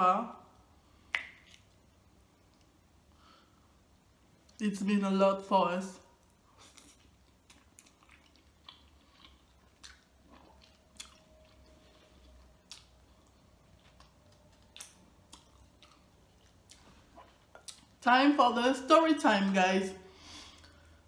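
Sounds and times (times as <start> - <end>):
person chewing: 1.1 - 1.8, 6.4 - 18.0.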